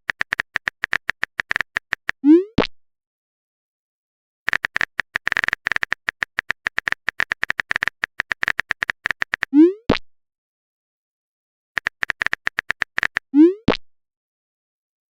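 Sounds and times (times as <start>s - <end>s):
phone keyboard key clicks: 0.1s - 2.2s, 4.5s - 9.5s, 11.8s - 13.2s.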